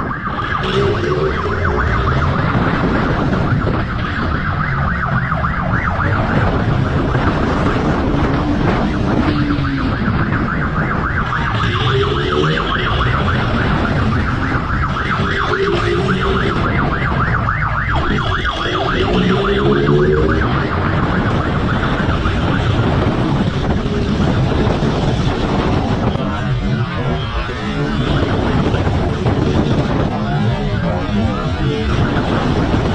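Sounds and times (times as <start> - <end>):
police siren yelping: 0.0 - 32.9
vehicle engines and road noise: 0.0 - 32.9
engine revving up and down: 18.6 - 20.7.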